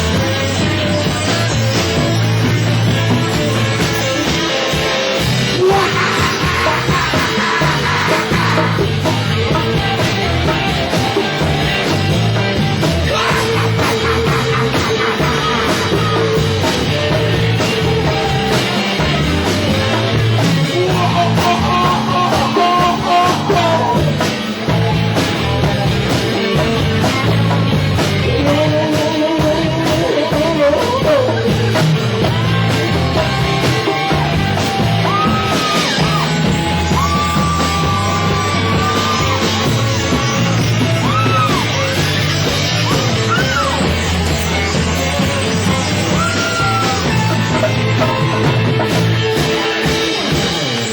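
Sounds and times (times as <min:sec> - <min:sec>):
bass guitar: 0:00.0 - 0:50.9
drums: 0:00.0 - 0:50.9
electric guitar: 0:00.0 - 0:50.9
person singing or shouting: 0:05.5 - 0:11.9, 0:12.8 - 0:19.3, 0:20.0 - 0:24.4, 0:33.2 - 0:50.0.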